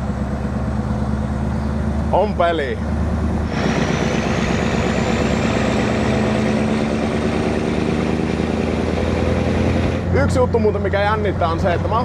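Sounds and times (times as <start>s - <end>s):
diesel truck engine drone: 0.0s - 12.0s.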